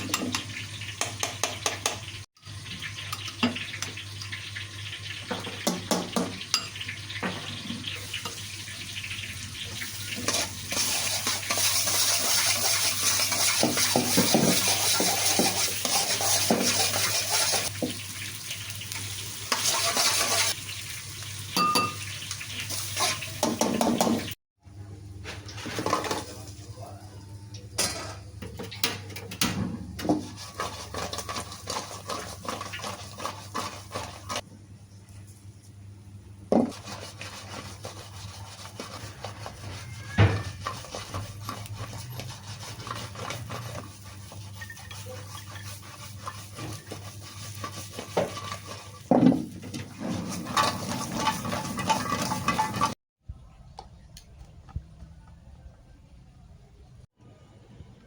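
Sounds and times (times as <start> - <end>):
metal utensil scraping in a pan: 6.4 - 18.0, 19.2 - 20.6, 21.6 - 24.3, 30.0 - 34.4, 36.6 - 53.0.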